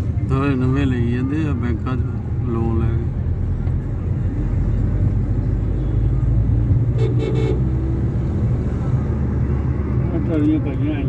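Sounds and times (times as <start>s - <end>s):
road traffic rumble: 0.0s - 11.0s
vehicle horn tooting: 7.0s - 7.8s.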